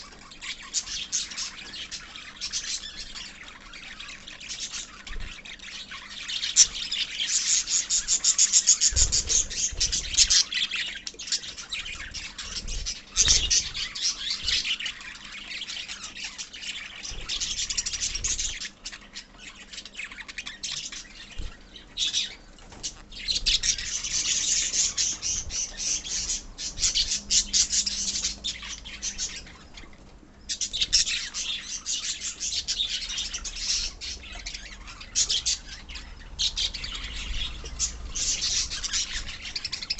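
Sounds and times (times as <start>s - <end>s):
parrots chirping and squawking: 0.0s - 39.9s.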